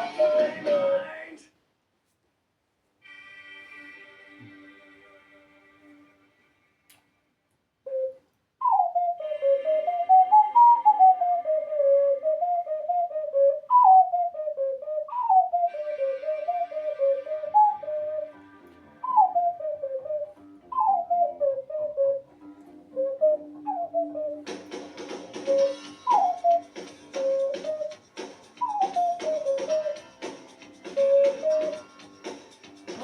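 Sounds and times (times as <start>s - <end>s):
ocarina melody: 0.0s - 1.2s, 7.8s - 24.6s, 25.4s - 28.0s, 28.6s - 30.2s, 30.8s - 32.2s
faint backing music: 0.0s - 1.5s, 3.0s - 7.5s, 8.7s - 33.0s.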